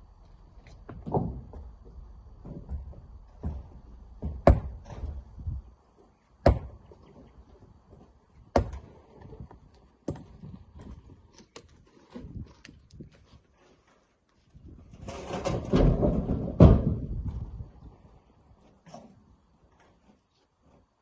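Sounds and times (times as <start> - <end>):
rock knocks: 2.4 - 5.2.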